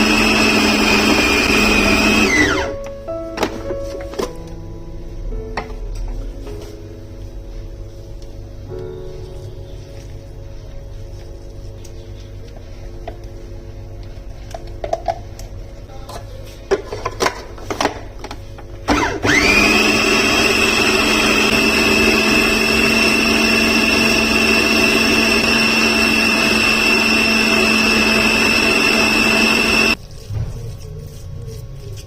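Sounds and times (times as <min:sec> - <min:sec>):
electric kitchen motor running: 0:00.0 - 0:02.8, 0:18.2 - 0:30.0.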